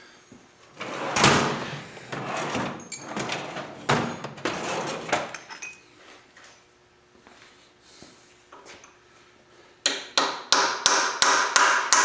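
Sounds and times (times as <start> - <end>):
metal knocks and scraping: 0.8 - 5.8.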